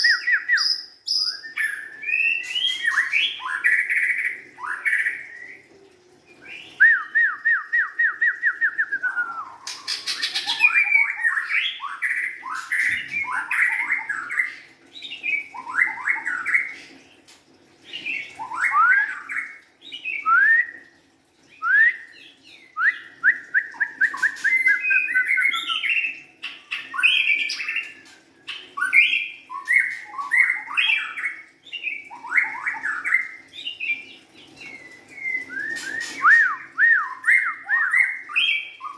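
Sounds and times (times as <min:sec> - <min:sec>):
bird singing whistled phrases: 0:00.0 - 0:05.7, 0:06.5 - 0:14.5, 0:18.1 - 0:20.9, 0:21.6 - 0:28.1, 0:34.6 - 0:38.9.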